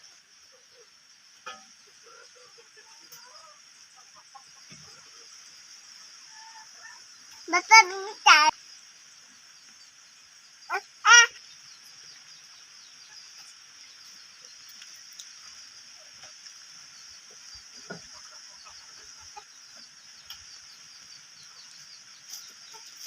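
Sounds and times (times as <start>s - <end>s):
high-pitched insect trill: 0.0s - 23.0s
chickens clucking: 1.5s - 5.3s, 12.9s - 23.0s.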